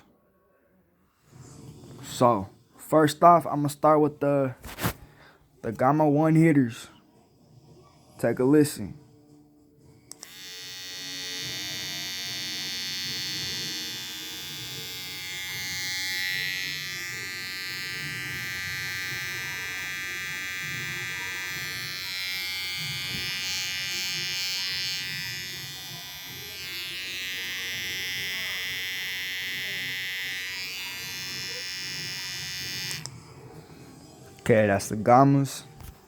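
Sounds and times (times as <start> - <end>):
hair trimmer buzzing: 10.1 - 33.2.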